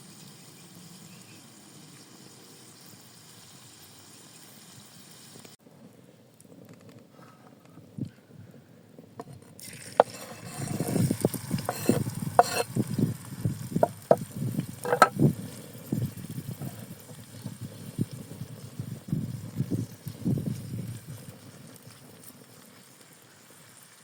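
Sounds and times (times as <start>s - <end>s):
food sizzling in a pan: 0.0s - 5.6s, 9.6s - 24.0s
utensil scraping a pan: 9.2s - 13.0s, 14.8s - 15.2s
knocks: 14.9s - 15.2s.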